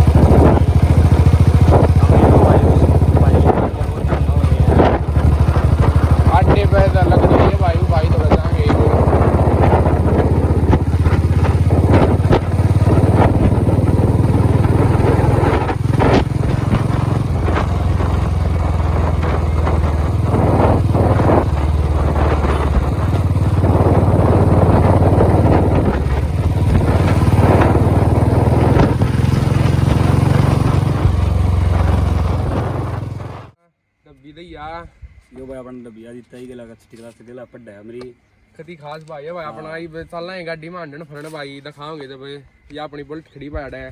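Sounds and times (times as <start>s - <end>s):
knocks and rattles: 0.0s - 33.5s
vehicle engine running: 0.0s - 33.6s.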